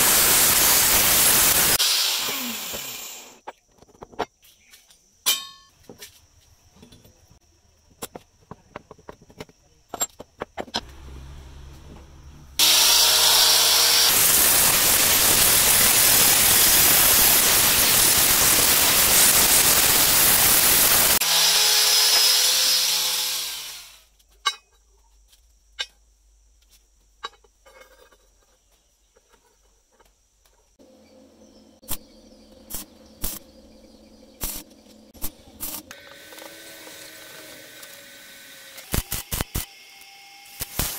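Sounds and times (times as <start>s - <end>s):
angle grinder grinding metal: 0.0s - 3.4s, 12.6s - 24.1s, 34.4s - 40.9s.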